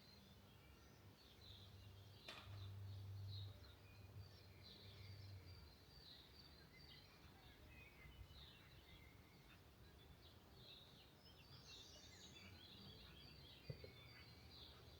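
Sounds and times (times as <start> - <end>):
faint birds chirping: 0.0 - 14.9.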